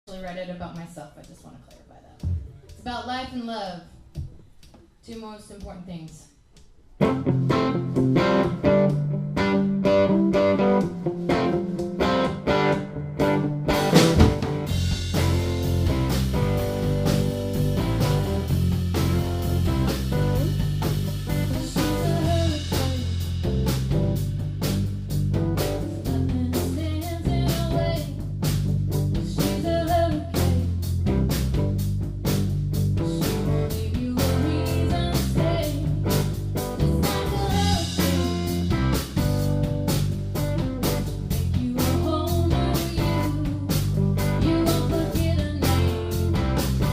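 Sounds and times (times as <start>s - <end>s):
drums: 0.0s - 46.9s
guitar strummed figure: 7.0s - 23.2s
bass guitar: 7.0s - 46.9s
rock band playing: 7.0s - 46.9s.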